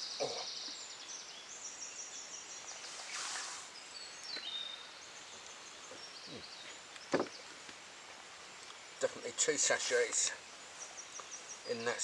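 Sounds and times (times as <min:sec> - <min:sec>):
small birds singing and trilling: 0:00.0 - 0:12.0
soft rustle: 0:02.7 - 0:04.6, 0:05.3 - 0:11.8.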